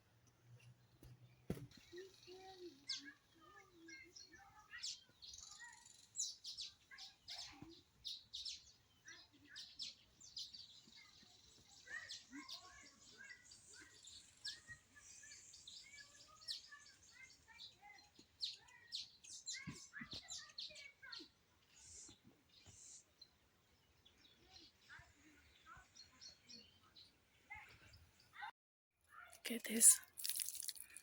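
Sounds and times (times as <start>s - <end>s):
birds chirping: 0.6s - 28.5s, 29.4s - 31.0s.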